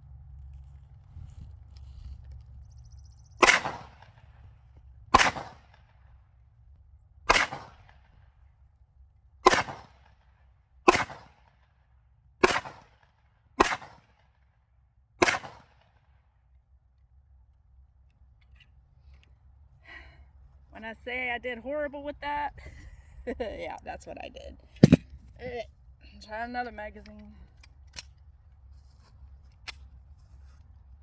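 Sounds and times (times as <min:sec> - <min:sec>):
handgun shots with echo: 0:03.4 - 0:04.1, 0:05.2 - 0:05.7, 0:07.3 - 0:08.0, 0:09.4 - 0:10.0, 0:10.9 - 0:11.4, 0:12.4 - 0:12.9, 0:13.6 - 0:14.1, 0:15.2 - 0:15.8.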